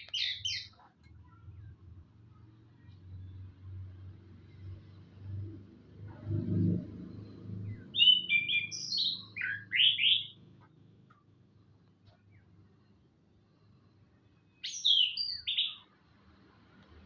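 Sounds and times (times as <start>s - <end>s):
low rumble: 3.3s - 8.0s
bird singing whistled notes: 7.6s - 10.4s, 14.5s - 15.9s.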